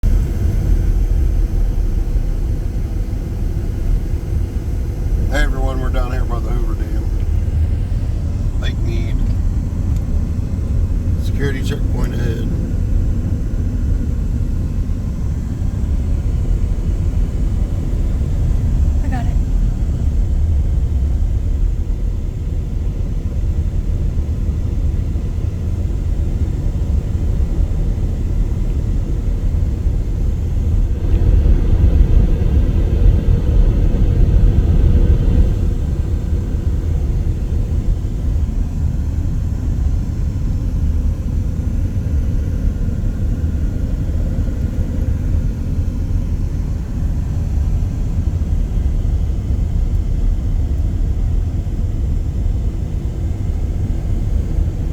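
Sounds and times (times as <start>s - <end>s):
vehicle driving rumble: 0.0s - 25.2s.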